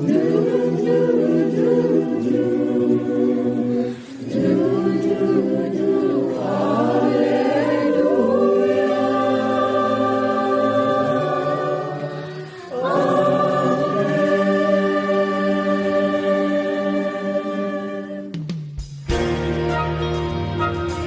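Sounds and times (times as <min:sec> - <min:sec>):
choir singing in harmony: 0:00.0 - 0:18.4
singers breathing: 0:03.7 - 0:04.3, 0:12.0 - 0:12.8.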